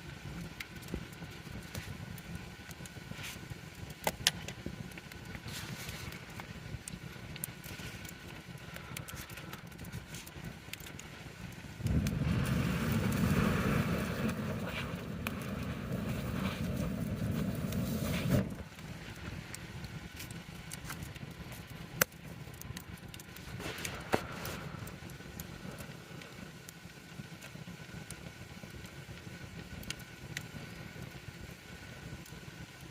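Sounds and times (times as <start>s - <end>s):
campfire crackling: 0.0s - 32.9s
loud low rushing noise: 11.8s - 18.6s.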